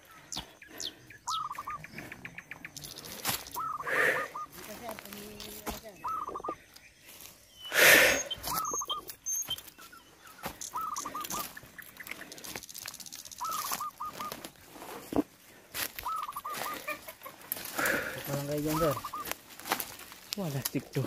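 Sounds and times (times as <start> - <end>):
bird calling short notes: 3.0 - 6.6, 7.6 - 9.7, 10.5 - 11.6, 13.3 - 14.4, 16.0 - 17.0, 18.6 - 19.4.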